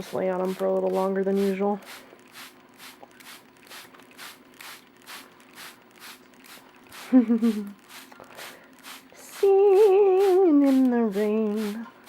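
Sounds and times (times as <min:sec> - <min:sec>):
spray bottle squirts: 0:01.3 - 0:11.8
person humming: 0:09.2 - 0:11.9.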